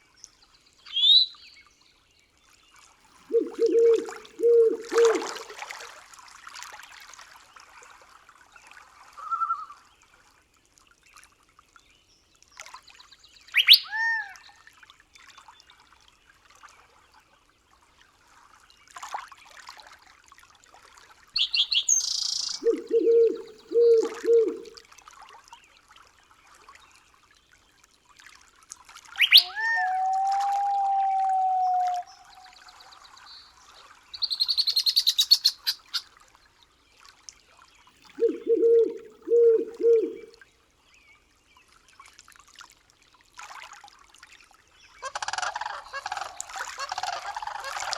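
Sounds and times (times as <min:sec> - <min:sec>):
bird-like chirps: 0:00.8 - 0:01.5, 0:13.5 - 0:14.0, 0:21.4 - 0:24.7, 0:29.2 - 0:30.0, 0:34.2 - 0:36.1
low pulsed calls: 0:03.3 - 0:05.5, 0:21.4 - 0:24.8, 0:29.2 - 0:32.6, 0:38.2 - 0:40.3
long steady whistle: 0:29.8 - 0:32.1.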